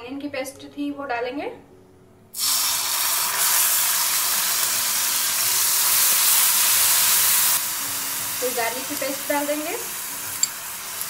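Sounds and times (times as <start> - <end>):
onion paste sizzling in oil: 2.4 - 11.0.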